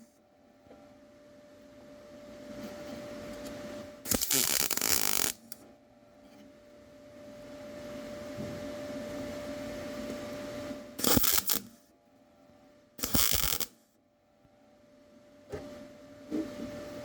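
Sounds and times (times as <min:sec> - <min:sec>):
steady background hum: 0:00.0 - 0:17.0
welding bursts: 0:04.1 - 0:05.6, 0:11.0 - 0:11.7, 0:13.0 - 0:13.8.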